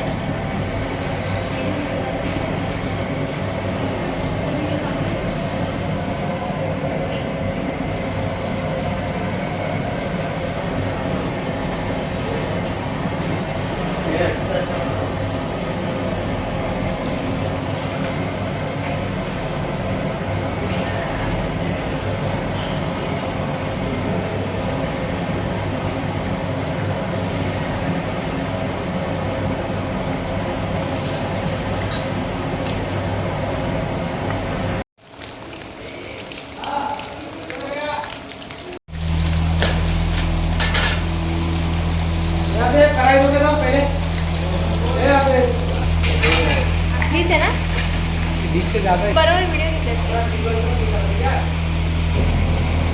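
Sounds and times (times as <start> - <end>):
even hum: 0.0 - 34.8, 38.9 - 52.9
loud rumbling noise: 38.9 - 52.9
faint hum: 39.0 - 52.9.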